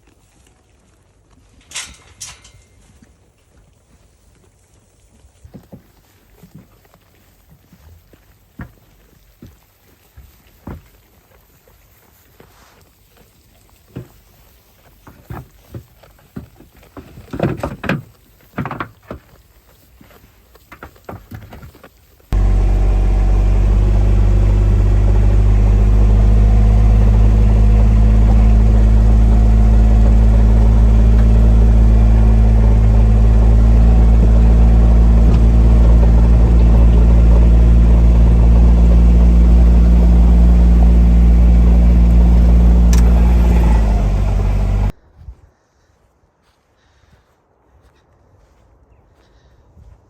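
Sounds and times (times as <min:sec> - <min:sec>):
vehicle engine running: 0:22.4 - 0:45.0.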